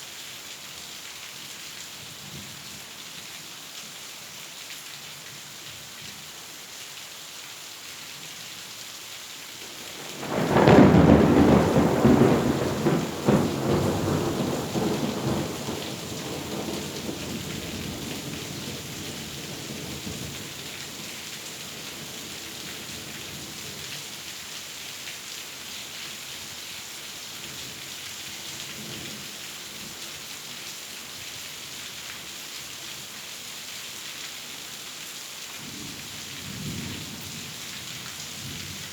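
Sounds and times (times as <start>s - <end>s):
steady rain: 0.0s - 38.9s
thunderclap rumbling: 9.7s - 20.5s.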